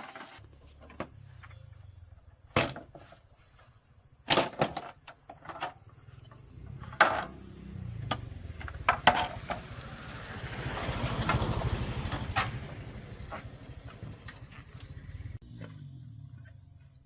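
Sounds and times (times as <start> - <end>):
small engine pulsing rumble: 6.0 - 16.9.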